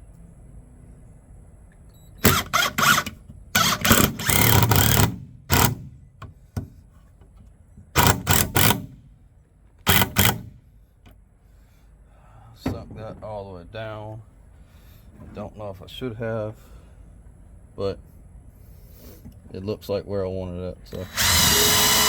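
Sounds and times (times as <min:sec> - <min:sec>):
cordless drill driving a screw: 0:02.2 - 0:05.8, 0:08.0 - 0:09.0, 0:09.9 - 0:10.5, 0:21.0 - 0:22.0.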